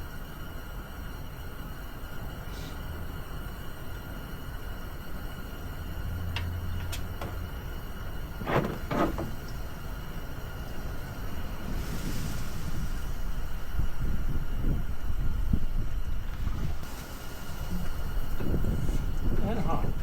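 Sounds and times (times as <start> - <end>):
wind rumbling on microphone: 6.7 - 20.0
short scraping rasps: 8.4 - 9.6.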